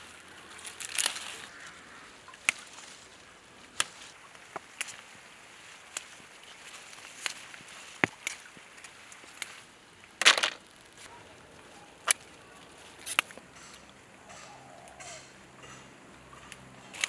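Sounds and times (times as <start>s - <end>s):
scissors snipping flower stalks: 0.6s - 1.4s, 13.0s - 13.9s.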